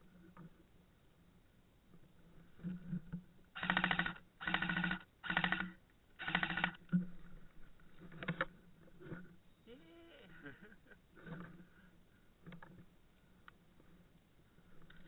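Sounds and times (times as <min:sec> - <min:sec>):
airsoft gun full-auto bursts: 0:03.6 - 0:06.8.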